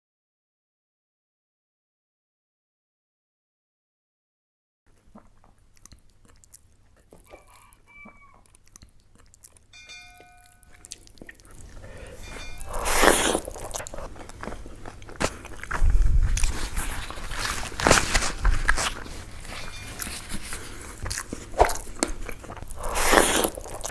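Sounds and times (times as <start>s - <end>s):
biting crunching and chewing: 4.9s - 23.9s
distant rooster crowing: 7.2s - 8.5s.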